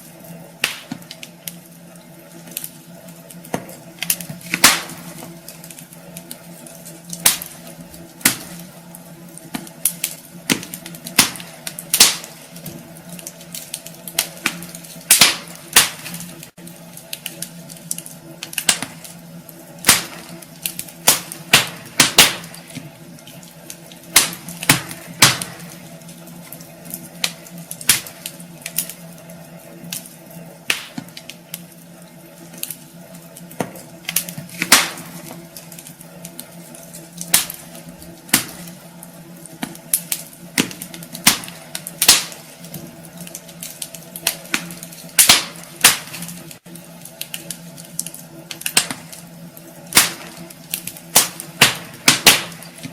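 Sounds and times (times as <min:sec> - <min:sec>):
faint steady hum: 0:00.0 - 0:52.9
wood fire crackling and popping: 0:00.0 - 0:52.9.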